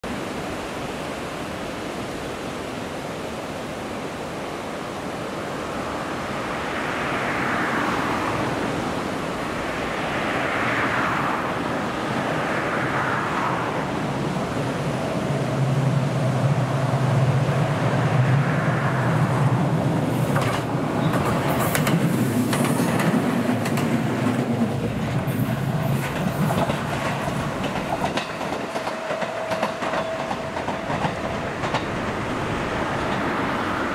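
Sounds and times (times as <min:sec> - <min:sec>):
waves washing on shore: 0:00.0 - 0:33.9
electric train running: 0:15.3 - 0:33.9
wheels clicking over rail joints: 0:20.2 - 0:33.9.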